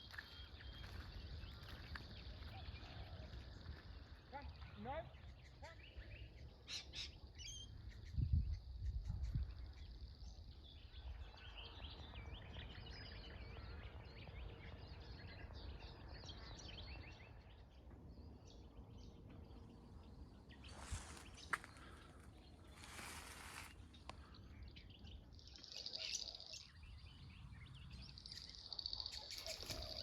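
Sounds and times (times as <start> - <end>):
small birds chirping: 0.0 - 30.0
wind rumble on microphone: 7.7 - 17.4
rustle: 22.7 - 23.9.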